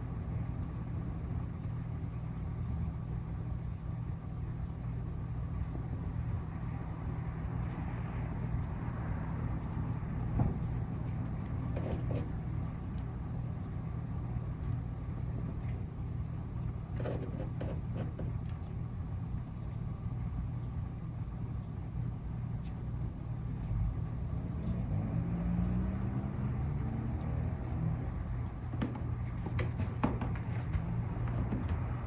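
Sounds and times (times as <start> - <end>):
vehicle engine rumble: 23.1 - 32.0.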